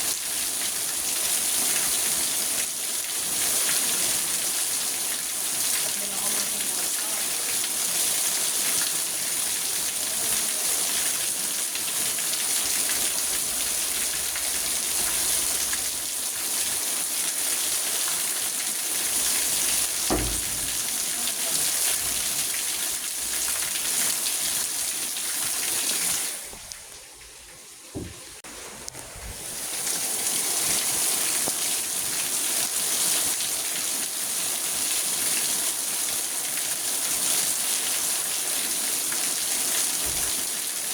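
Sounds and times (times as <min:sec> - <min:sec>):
heavy rain on a car roof: 0:00.0 - 0:26.4, 0:29.6 - 0:40.9
dull low thuds: 0:19.8 - 0:21.2.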